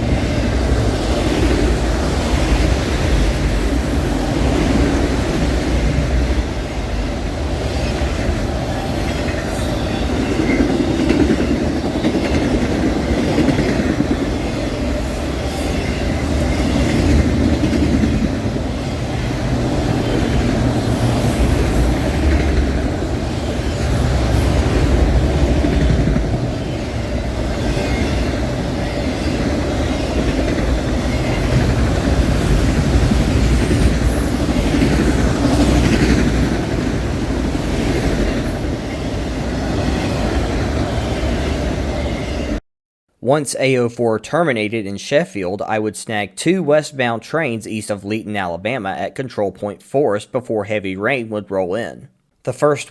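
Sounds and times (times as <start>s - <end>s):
wheels clacking over rails: 0.0s - 41.7s
freight train rumbling: 0.0s - 42.6s.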